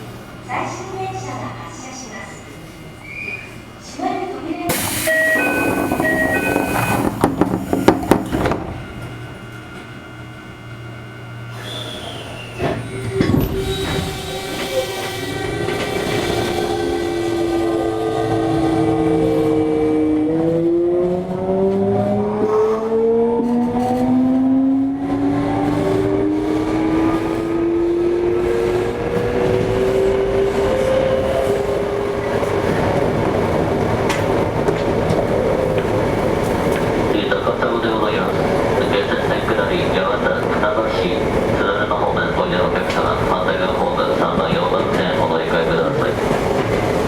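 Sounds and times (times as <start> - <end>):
train running noise: 0.0 - 47.0
train inverter motor whine: 4.8 - 19.5.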